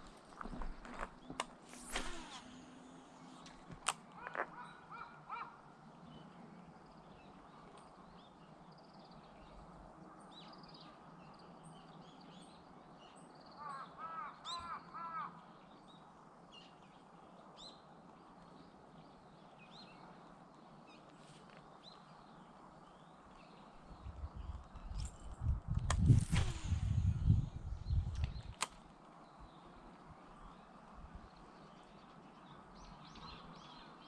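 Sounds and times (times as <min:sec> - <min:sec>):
small birds chirping: 0:00.0 - 0:34.0
harsh bird calls: 0:04.2 - 0:05.7.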